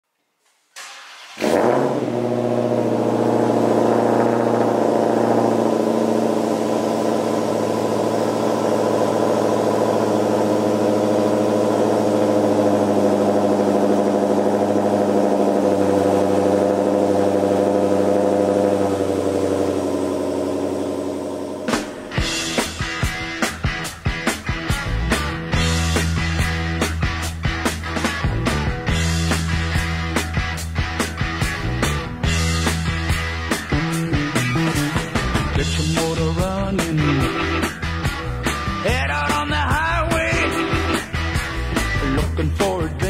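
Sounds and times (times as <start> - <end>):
car engine starting and idling: 0.7 - 43.0
rock music: 21.5 - 43.0.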